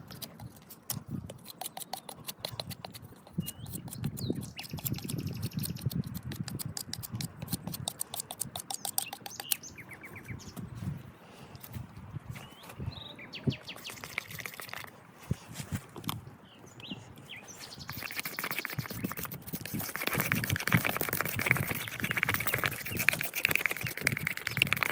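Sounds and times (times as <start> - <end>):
birds singing and chirping: 1.4 - 11.7, 12.3 - 14.8, 16.4 - 24.9.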